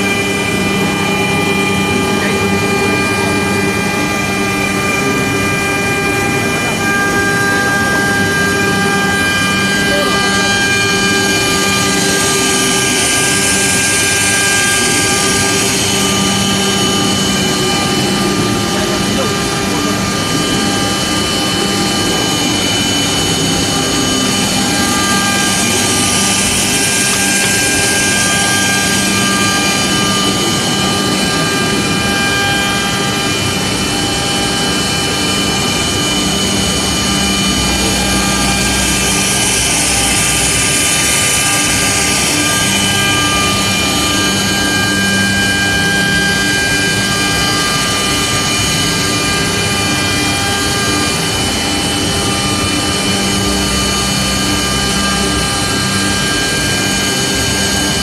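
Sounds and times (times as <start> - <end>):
router spindle whine: 0.0 - 58.0.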